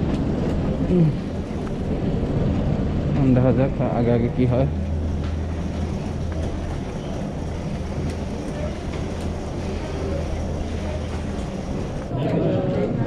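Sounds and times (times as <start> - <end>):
low hum: 0.0 - 12.2
faint distant voices: 3.1 - 13.0.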